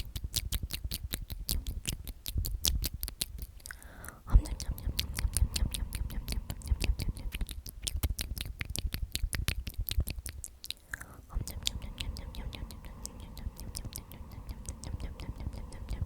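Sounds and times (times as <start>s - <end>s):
wet mouth clicks and lip smacks: 0.0s - 16.0s
person whispering: 3.7s - 7.6s, 11.0s - 16.0s.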